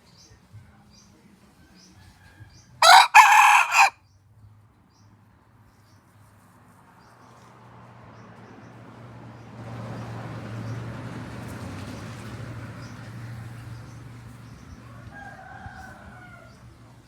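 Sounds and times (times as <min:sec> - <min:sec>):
rooster crowing: 0:02.0 - 0:04.0, 0:14.9 - 0:16.6.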